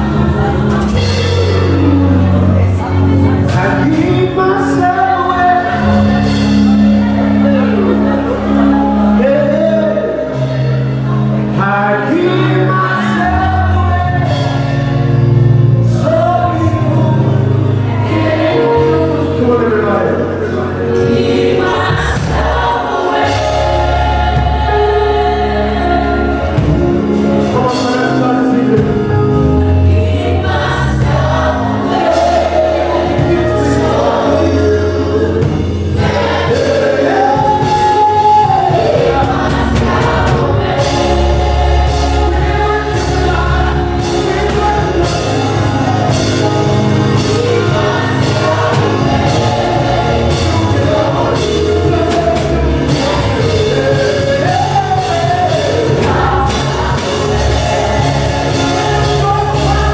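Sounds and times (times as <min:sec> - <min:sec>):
choir singing gospel: 0:00.0 - 0:59.9
steady bass line: 0:00.0 - 0:59.9.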